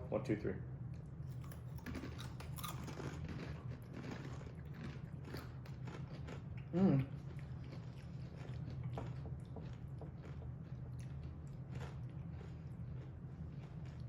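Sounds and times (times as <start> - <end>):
steady low hum: 0.0 - 14.0
chips crunching: 1.4 - 6.5.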